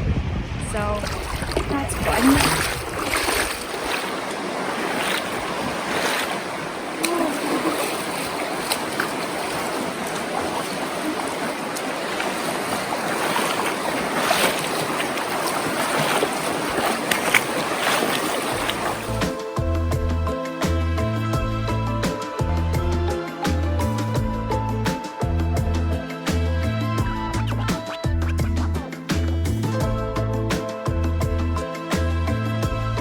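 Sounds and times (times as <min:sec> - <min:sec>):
people wading splashing: 0:00.8 - 0:19.8
river water rushing: 0:01.0 - 0:19.6
music: 0:18.6 - 0:33.0.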